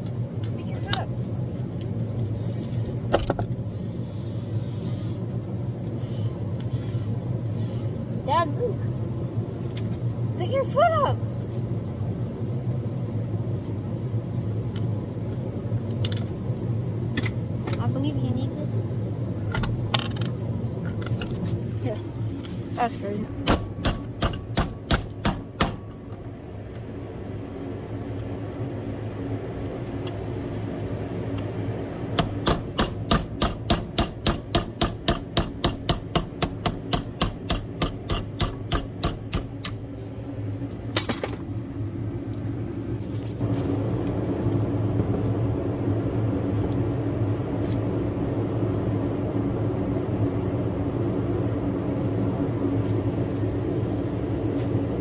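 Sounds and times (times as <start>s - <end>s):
steady machine hum: 0.0s - 55.0s
hammer striking steel: 23.4s - 26.0s, 32.2s - 39.8s.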